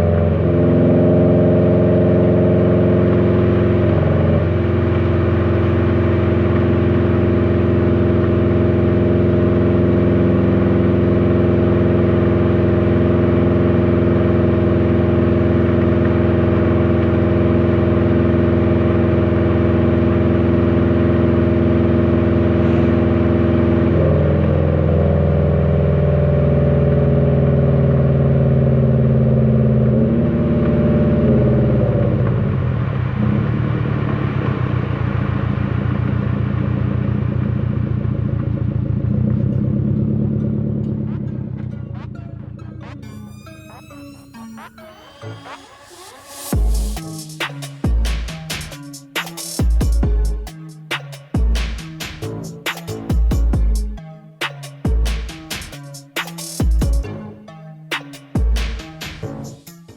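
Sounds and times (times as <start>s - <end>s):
car engine cruising: 0.0s - 59.9s.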